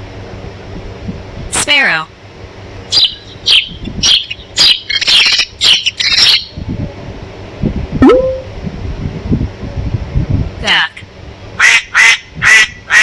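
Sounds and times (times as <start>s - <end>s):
sparrow chirping: 2.9s - 6.5s
brief rising tone: 8.0s - 8.5s.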